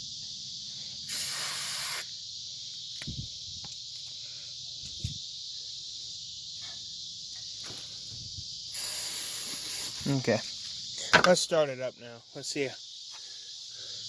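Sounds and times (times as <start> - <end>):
insect chorus: 0.0 - 14.0
aerosol spray hissing: 0.6 - 3.8, 7.7 - 10.2.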